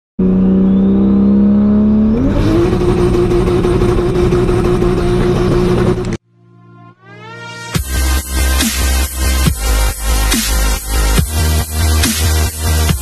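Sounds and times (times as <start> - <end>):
car engine revving: 0.2 - 6.2.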